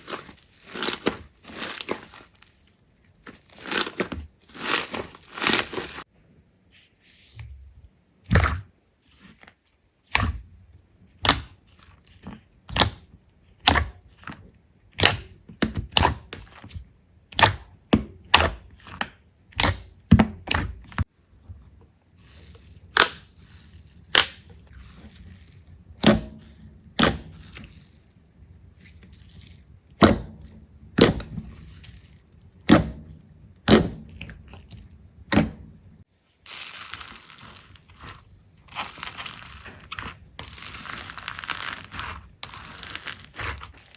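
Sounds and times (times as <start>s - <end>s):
crinkling crunch: 0.0s - 6.1s, 27.3s - 29.8s, 36.4s - 43.9s.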